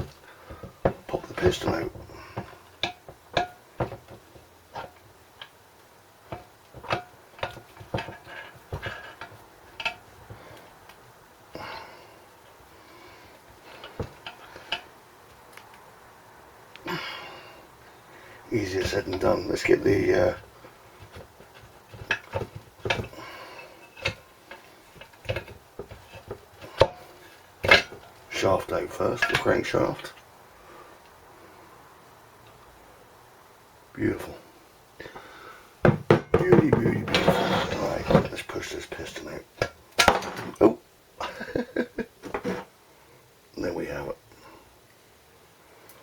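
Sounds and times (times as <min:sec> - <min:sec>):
metal engine parts clinking: 0:29.1 - 0:30.2.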